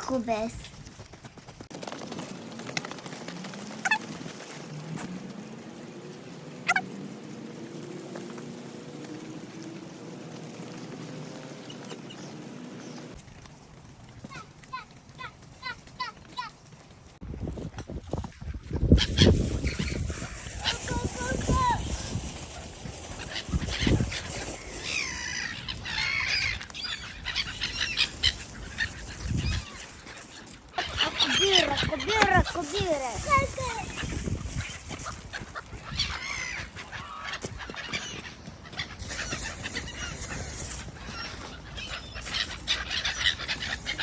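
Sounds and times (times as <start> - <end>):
sparrows chirping: 4.6 - 13.2, 18.7 - 44.0.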